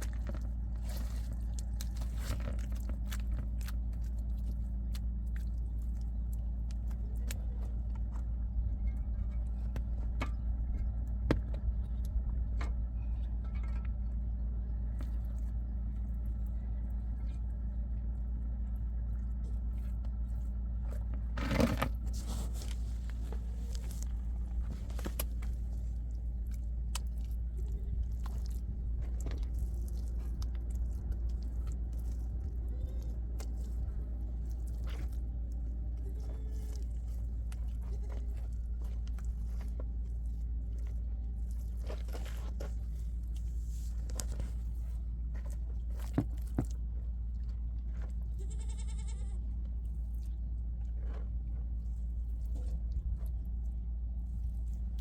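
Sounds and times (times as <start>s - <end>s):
low rumble: 0.0s - 55.0s
sheep or goats bleating: 48.3s - 49.5s.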